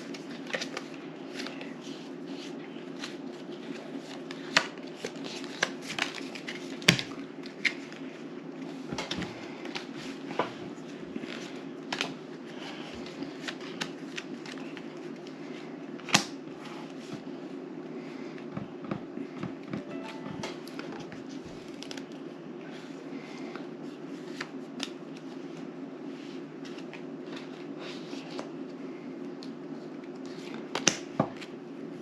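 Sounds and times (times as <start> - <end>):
playing cards clicking and slapping: 0.0 - 1.7, 2.4 - 8.0, 13.0 - 15.4, 24.3 - 25.3, 30.2 - 31.6
soft rustling of cards: 0.0 - 18.4.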